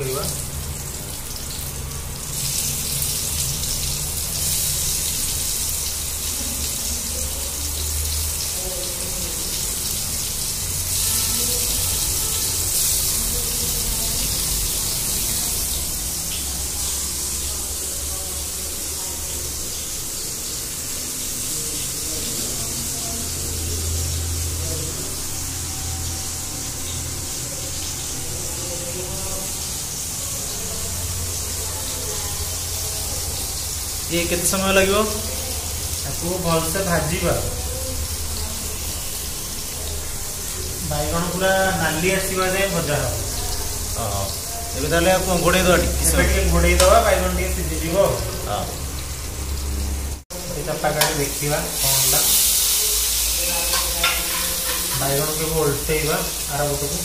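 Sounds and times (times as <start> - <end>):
eggplant sizzling in hot oil: 0.0 - 57.0.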